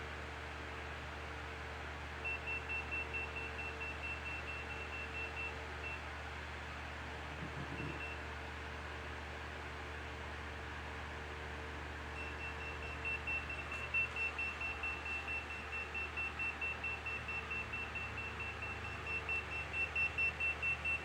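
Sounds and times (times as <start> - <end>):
low electrical hum: 0.0 - 21.0
radiation detector beeping: 12.2 - 21.0.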